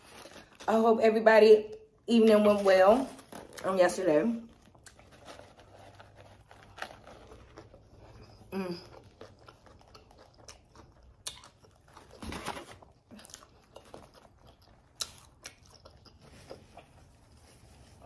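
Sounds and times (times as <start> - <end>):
chewing crunchy chips: 4.4 - 17.3.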